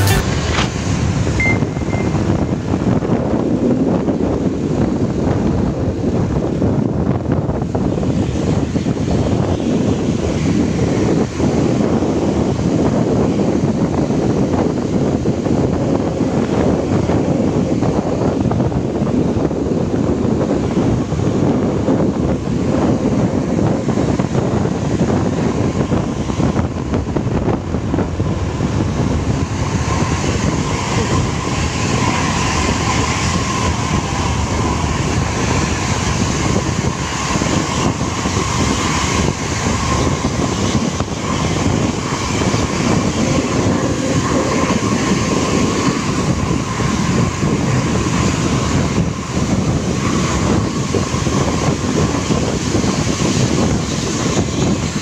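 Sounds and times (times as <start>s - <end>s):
bus engine drone: 0.0s - 55.0s
faint high whine: 1.3s - 2.6s.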